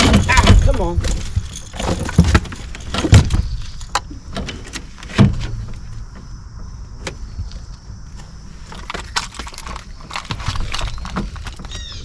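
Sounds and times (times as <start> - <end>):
gear knocking and thumping in boat: 0.0 - 7.8, 8.6 - 12.0
light clicks and rattles: 8.6 - 11.8.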